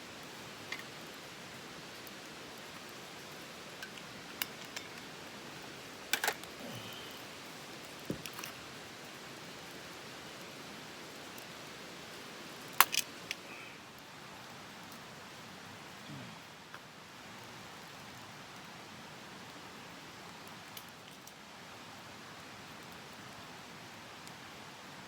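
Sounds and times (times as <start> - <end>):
campfire hissing: 0.0 - 25.0
campfire pops: 1.8 - 9.1, 12.6 - 13.5.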